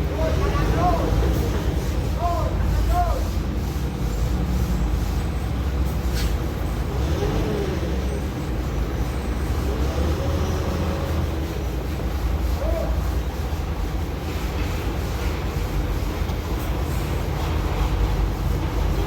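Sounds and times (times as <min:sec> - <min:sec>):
diesel truck engine droning: 0:03.8 - 0:14.2.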